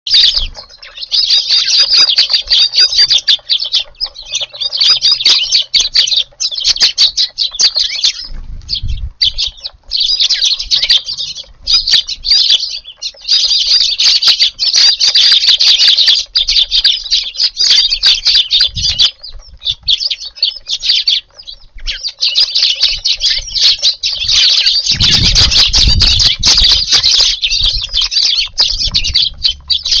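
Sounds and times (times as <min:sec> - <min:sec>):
sparrows chirping: 0:00.1 - 0:30.0.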